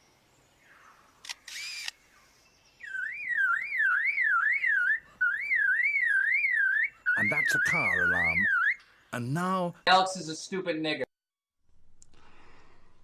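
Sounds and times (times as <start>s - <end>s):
bird mimicking camera shutter: 1.2s - 2.0s
bird mimicking car alarm: 2.8s - 8.8s.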